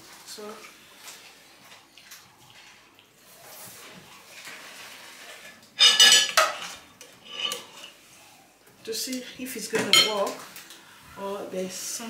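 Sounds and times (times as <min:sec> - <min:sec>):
kitchenware handled: 0:05.8 - 0:07.9, 0:09.7 - 0:10.4.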